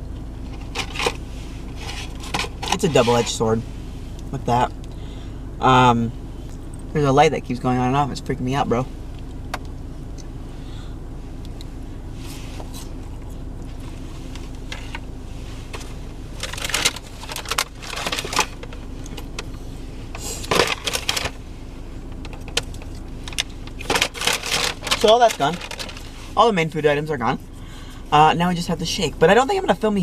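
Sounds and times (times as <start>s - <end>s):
car engine idling: 0.0s - 30.0s
rustling and clattering handling: 0.4s - 3.4s, 13.7s - 21.4s, 22.1s - 26.4s.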